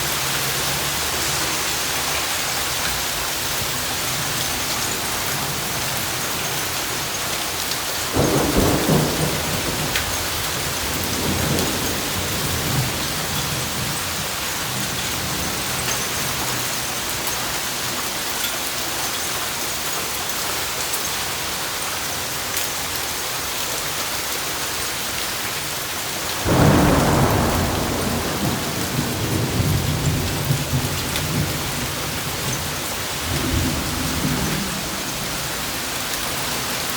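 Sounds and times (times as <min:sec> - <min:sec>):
heavy rain and hail: 0:00.0 - 0:36.9
thunder cracks and rumbles: 0:08.1 - 0:16.7, 0:26.4 - 0:36.9.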